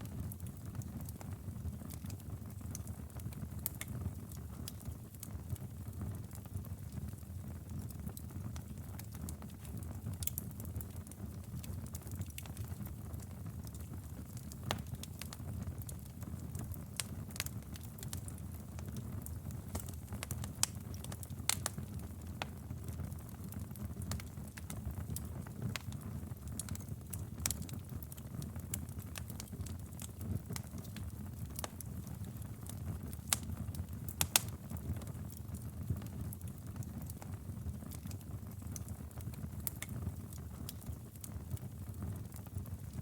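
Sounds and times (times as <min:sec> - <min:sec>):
fire crackling and popping: 0:00.0 - 0:43.0
fire flames rumbling: 0:16.2 - 0:43.0.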